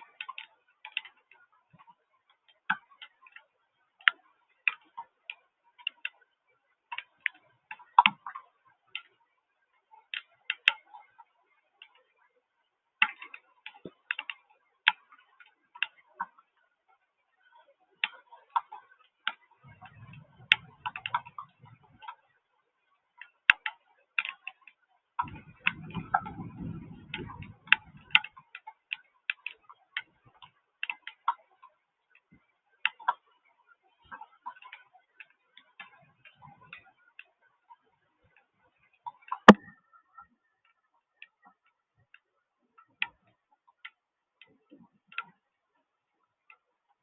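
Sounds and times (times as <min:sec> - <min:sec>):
rain dripping on hard surface: 0:25.2 - 0:30.1.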